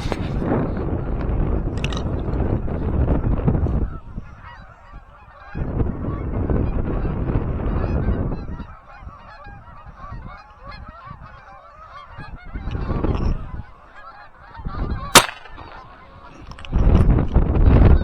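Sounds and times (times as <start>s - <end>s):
wind rumbling on microphone: 0.0s - 18.0s
geese honking: 8.4s - 13.0s, 13.7s - 15.9s
sharp loud bang: 15.2s - 15.8s.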